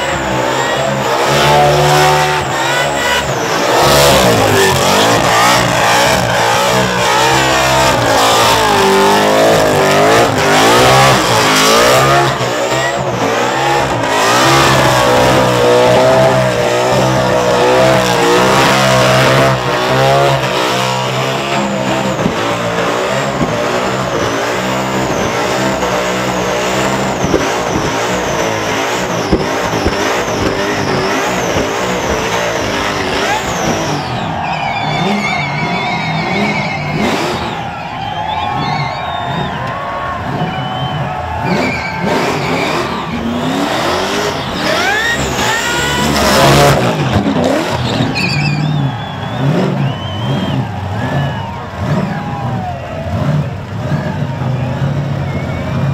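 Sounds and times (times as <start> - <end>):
car engine screaming at high revs: 0.0 - 55.9
tyres spinning and skidding: 0.0 - 55.9.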